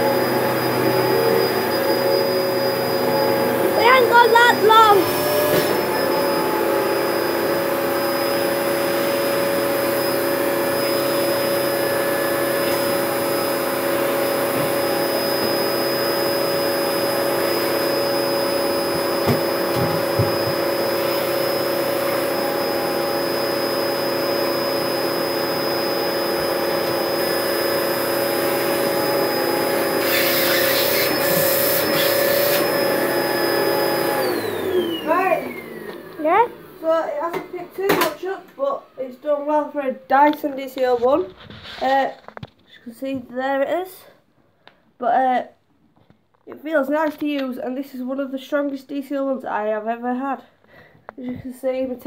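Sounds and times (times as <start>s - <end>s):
vacuum cleaner motor whine: 0.0s - 39.6s.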